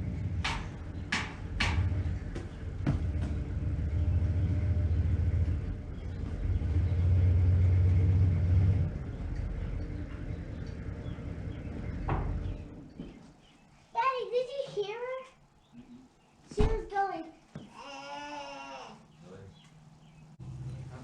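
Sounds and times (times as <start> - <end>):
vehicle engine and road rumble: 0.0 - 14.1, 19.3 - 21.0
sharp knocks: 0.2 - 3.9, 10.0 - 13.2.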